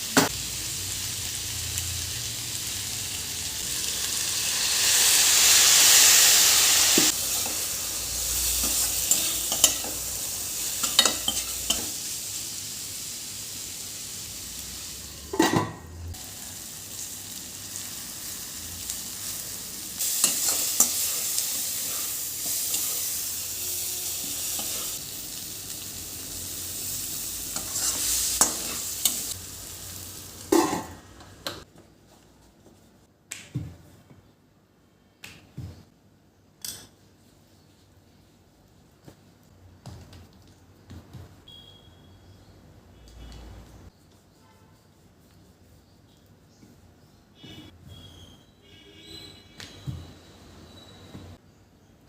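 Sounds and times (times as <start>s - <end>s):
food sizzling in a pan: 0.0s - 31.5s.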